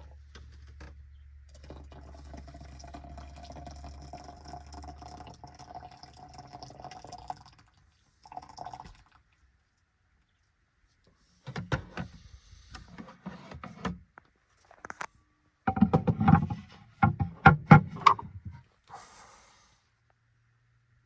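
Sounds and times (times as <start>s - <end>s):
objects clattering and knocking: 15.7s - 18.6s.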